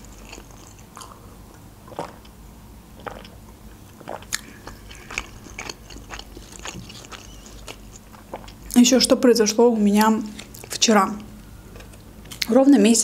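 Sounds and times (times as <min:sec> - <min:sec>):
wet chewing mouth clicks: 0:03.0 - 0:08.8.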